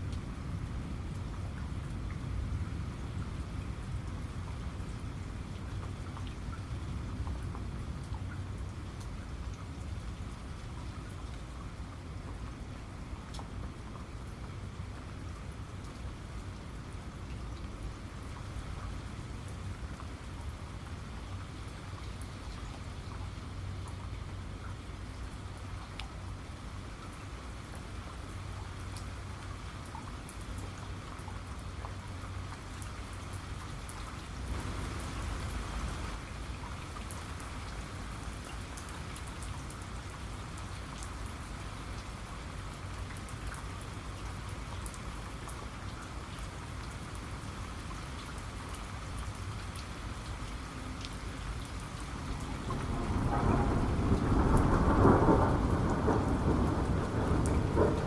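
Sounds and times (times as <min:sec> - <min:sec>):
heavy rain: 0:00.0 - 0:58.0
raindrop ticks: 0:04.0 - 0:58.0
thunder rumbling: 0:52.3 - 0:58.0.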